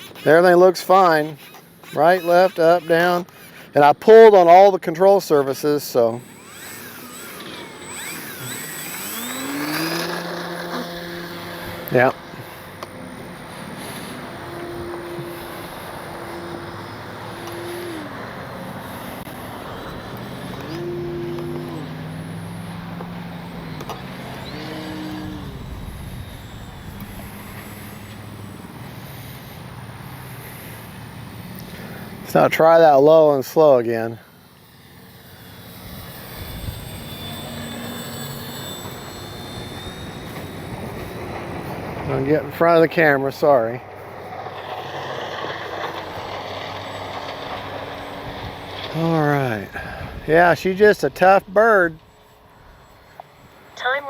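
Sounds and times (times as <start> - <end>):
model plane motor whine: 0.0 - 54.0
wind on microphone: 24.4 - 28.0, 35.8 - 37.3.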